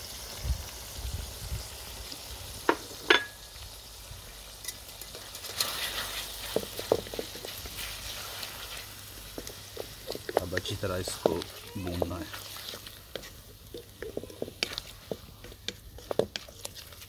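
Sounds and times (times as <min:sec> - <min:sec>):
food sizzling in hot oil: 0:00.0 - 0:17.0
wooden spatula scraping wok: 0:05.0 - 0:17.0.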